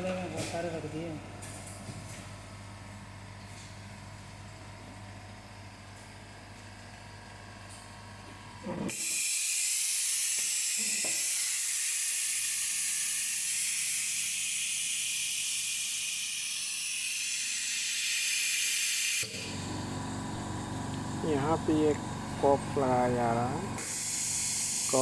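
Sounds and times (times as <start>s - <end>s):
air jet hissing: 21.2s - 25.0s.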